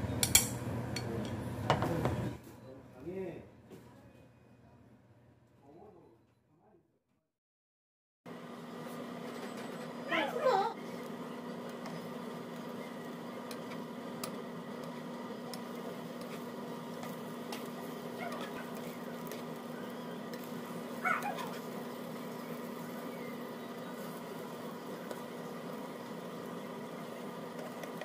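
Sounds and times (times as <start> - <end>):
egg cooking in frying pan: 10.8 - 28.0.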